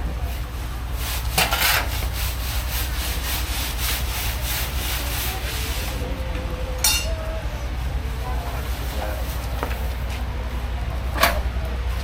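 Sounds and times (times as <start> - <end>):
rhythmic scraping: 0.0 - 6.1
steady low hum: 0.0 - 12.0.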